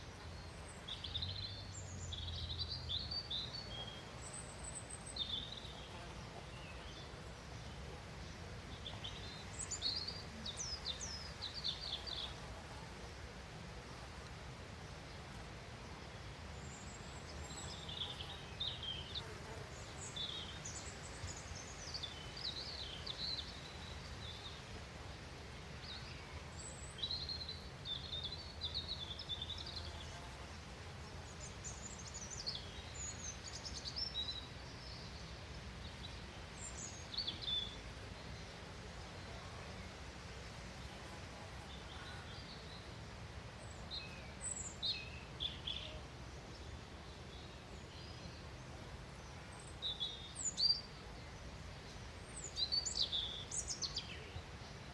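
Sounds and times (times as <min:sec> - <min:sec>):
songbirds chirping and twittering: 0:00.0 - 0:54.9.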